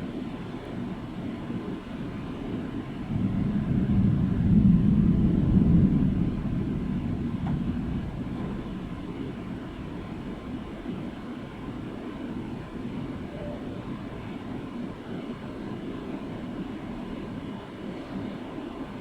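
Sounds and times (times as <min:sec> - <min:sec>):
steady rain: 0:00.0 - 0:19.0
low rolling thunder: 0:01.6 - 0:14.6.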